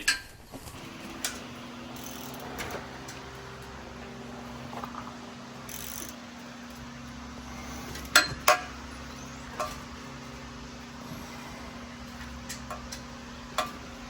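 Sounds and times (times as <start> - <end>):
steady mechanical hum: 0.0 - 14.0
hand tools clicking and tapping: 1.2 - 3.8, 5.7 - 6.8, 7.9 - 10.2, 12.0 - 14.0.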